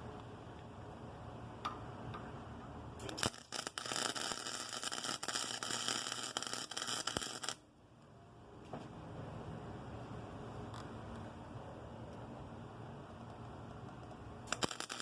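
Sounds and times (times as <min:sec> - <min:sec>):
welder arc crackling: 0:03.0 - 0:07.6, 0:14.5 - 0:15.0.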